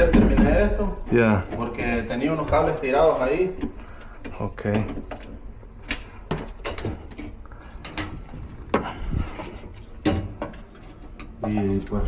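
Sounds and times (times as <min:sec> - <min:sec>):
objects knocking and clicking: 0:00.0 - 0:12.0.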